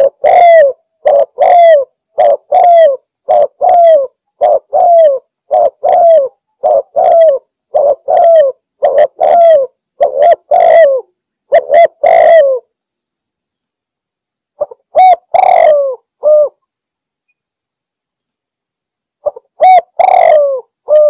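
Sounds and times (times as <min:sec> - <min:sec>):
dove cooing: 0:00.0 - 0:12.7, 0:14.6 - 0:16.6, 0:19.2 - 0:21.0.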